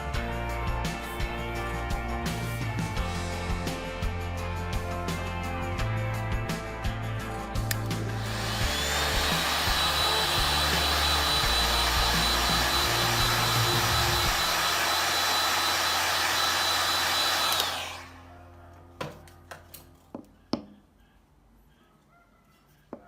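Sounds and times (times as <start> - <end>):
hot-air blower whining: 8.0 - 18.2.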